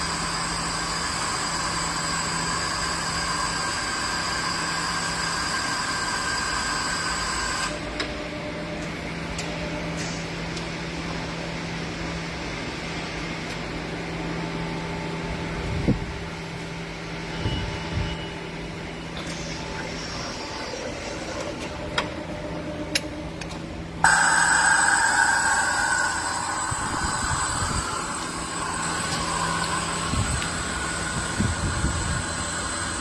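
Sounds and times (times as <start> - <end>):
high-pitched machine whine: 0.0 - 33.0
low machine hum: 7.7 - 33.0.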